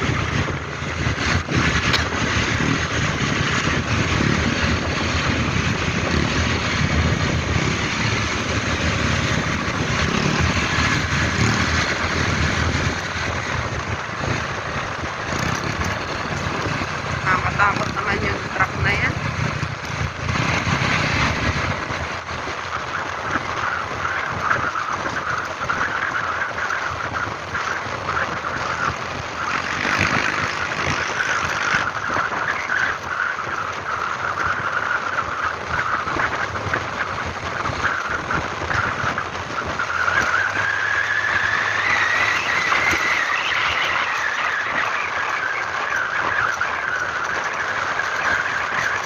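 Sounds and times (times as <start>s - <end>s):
whine rising in pitch: 0.0s - 20.7s, 37.4s - 49.0s
vehicle driving on road: 0.0s - 49.0s.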